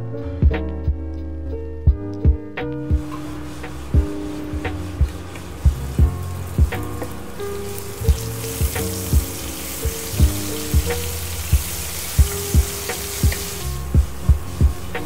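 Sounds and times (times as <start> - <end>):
background music with steady beat: 0.0 - 15.0
paste sizzling in hot oil: 3.0 - 15.0.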